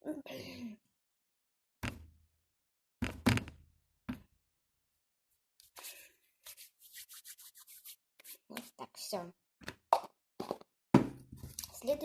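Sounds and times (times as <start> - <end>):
jar knocking and thudding: 9.6 - 11.7.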